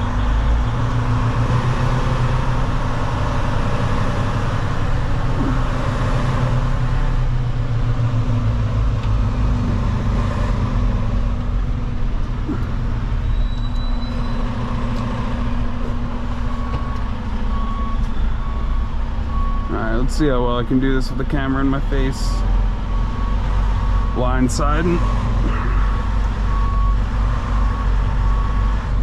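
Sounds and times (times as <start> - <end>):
diesel truck engine idling: 0.0 - 29.0
reversing alarm beeping: 13.1 - 14.7, 16.3 - 20.2, 22.9 - 29.0.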